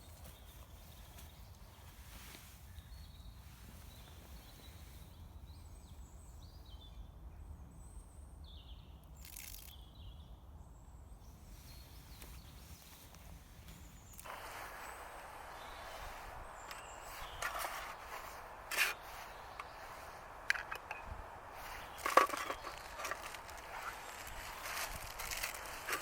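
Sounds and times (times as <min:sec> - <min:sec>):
small birds chirping: 0:00.0 - 0:10.4, 0:11.0 - 0:26.0
steady low rumble: 0:14.3 - 0:26.0.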